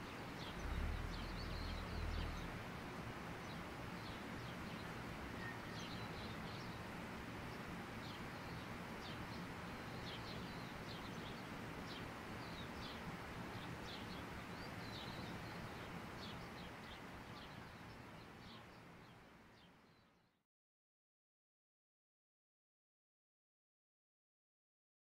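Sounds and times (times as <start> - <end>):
outdoor background hiss: 0.0 - 20.4
small birds chirping: 0.1 - 2.8, 8.0 - 20.2.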